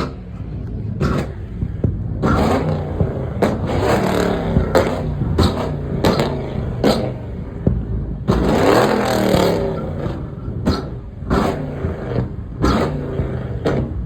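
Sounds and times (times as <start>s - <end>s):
burst of noise: 0.0s - 14.0s
car engine revving: 0.0s - 14.0s.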